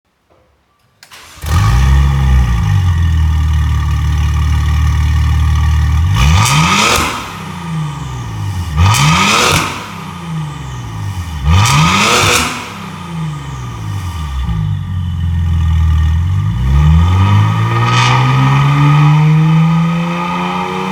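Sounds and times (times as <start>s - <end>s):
car engine starting and idling: 1.0s - 20.9s
car engine revving: 1.3s - 20.9s.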